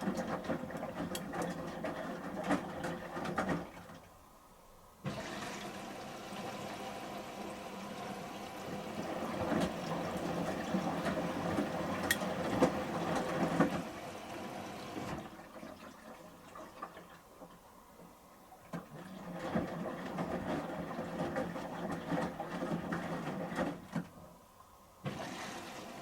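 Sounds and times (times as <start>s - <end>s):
small clicks and splashes: 0.0s - 4.2s, 9.4s - 13.8s
water rushing into washer drum: 0.0s - 4.3s, 5.0s - 26.0s.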